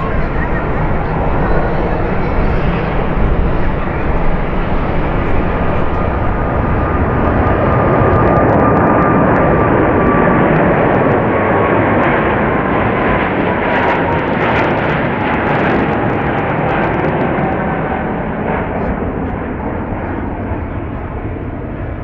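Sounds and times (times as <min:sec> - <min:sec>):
jet engines roaring and whining: 0:00.0 - 0:22.0.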